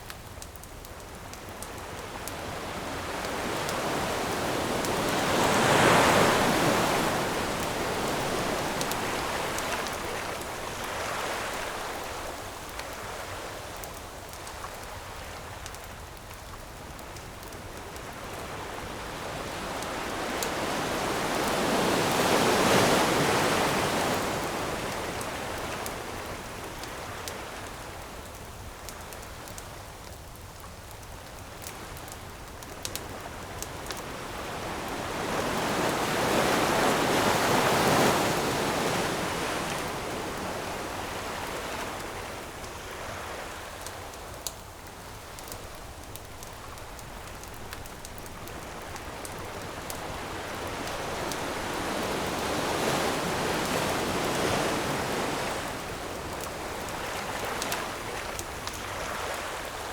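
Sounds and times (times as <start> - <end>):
campfire crackling: 0.0 - 59.9
ocean waves breaking: 1.5 - 13.3, 17.8 - 27.0, 32.9 - 44.3, 45.4 - 59.9.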